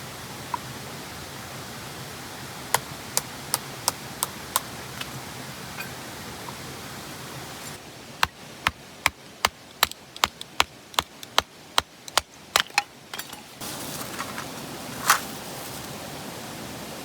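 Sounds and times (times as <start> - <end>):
hand tool knocking: 8.2 - 13.4.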